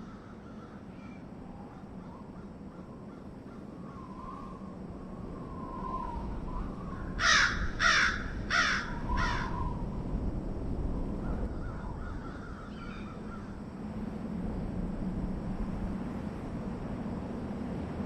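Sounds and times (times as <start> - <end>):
bird calls: 11.3 - 13.6.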